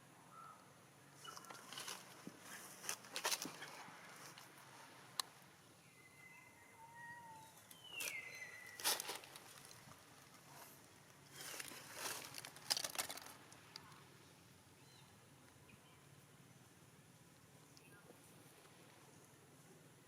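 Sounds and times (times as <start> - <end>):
rustling and crackling: 1.2 - 4.7, 8.0 - 14.0.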